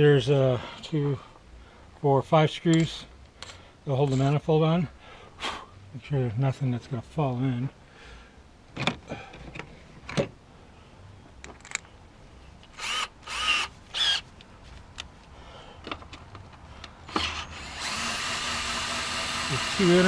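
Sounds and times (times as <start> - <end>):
drill clicks: 12.7 - 14.2, 17.1 - 20.0
power drill whirring: 12.8 - 14.2, 17.1 - 20.0.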